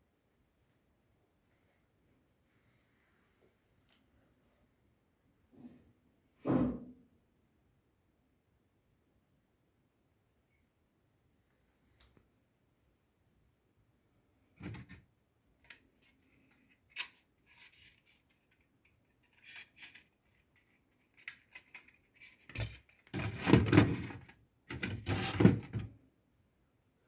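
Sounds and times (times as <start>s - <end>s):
clattering and rubbing: 19.2s - 25.9s.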